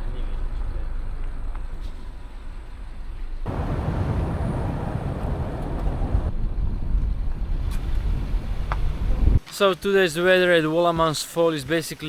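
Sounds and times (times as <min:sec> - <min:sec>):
low road rumble: 0:03.5 - 0:09.4.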